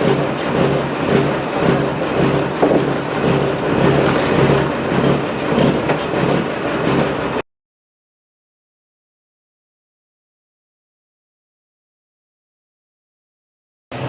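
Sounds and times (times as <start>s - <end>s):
diesel truck engine clattering: 0.0s - 7.3s.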